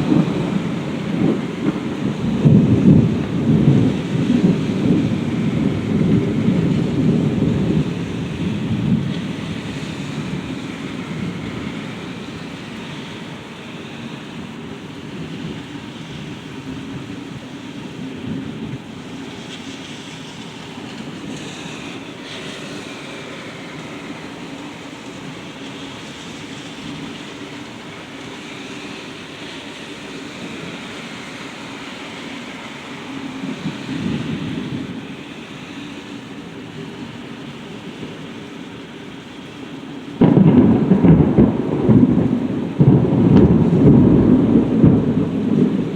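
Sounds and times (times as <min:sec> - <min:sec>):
thunder rumbling: 0:00.0 - 0:35.4, 0:40.0 - 0:45.9
steady rain: 0:00.0 - 0:45.9.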